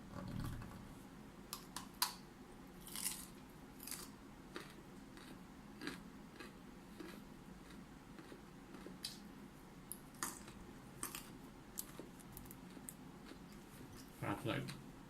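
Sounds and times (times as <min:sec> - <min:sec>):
person chewing crunchy food: 0:02.8 - 0:09.3, 0:09.9 - 0:14.8.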